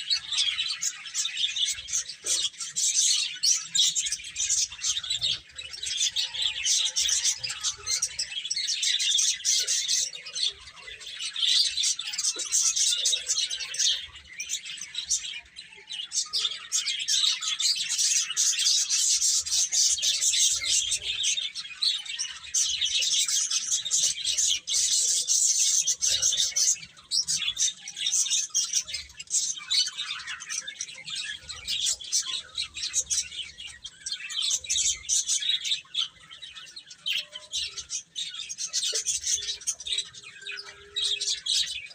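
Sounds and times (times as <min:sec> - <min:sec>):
baby chicks peeping: 0:00.0 - 0:41.9.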